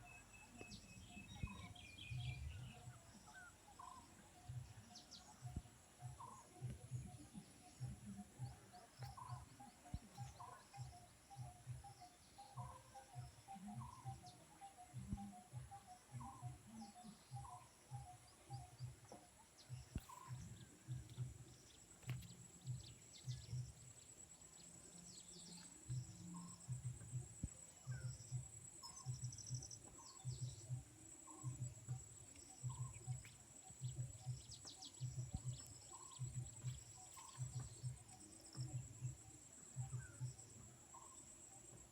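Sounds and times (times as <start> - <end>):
birds chirping: 0.0 - 41.9
low pulsing beat: 0.0 - 41.9.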